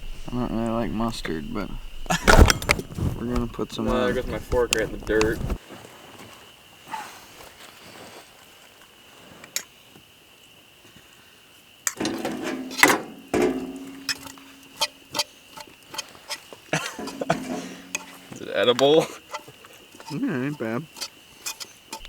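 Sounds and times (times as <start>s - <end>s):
metal utensils scraping a pan: 12.0s - 22.0s.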